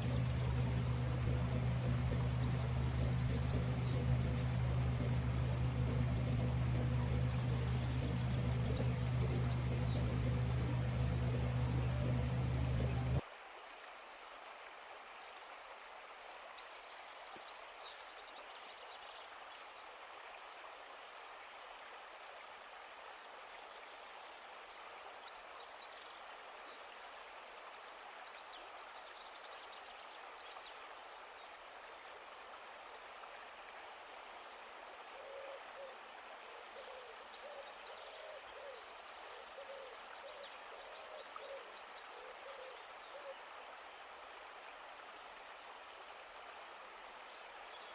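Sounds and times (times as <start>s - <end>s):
low hooting calls: 0.0s - 13.2s
steady hiss: 0.0s - 13.2s.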